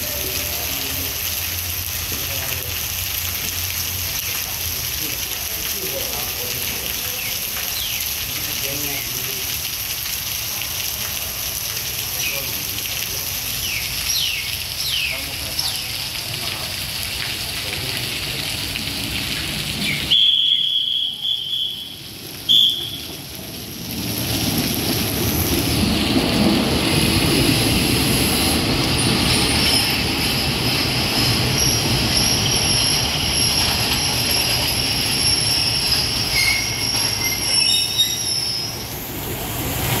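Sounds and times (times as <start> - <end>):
rain hiss: 0.0 - 40.0
diesel train rumbling: 15.2 - 40.0
high-pitched train toots: 20.1 - 23.2, 29.4 - 38.9
wheel and brake squeals: 29.2 - 38.9.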